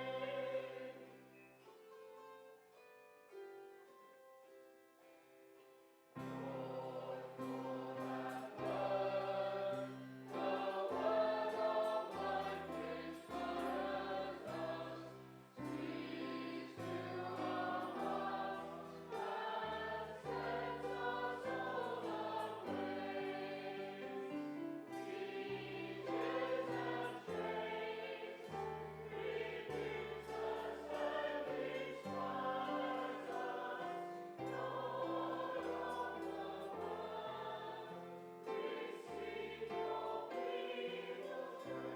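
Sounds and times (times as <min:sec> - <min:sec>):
congregation singing a hymn: 0:00.0 - 0:01.8, 0:06.2 - 0:41.9
music group with bass line: 0:29.0 - 0:33.8.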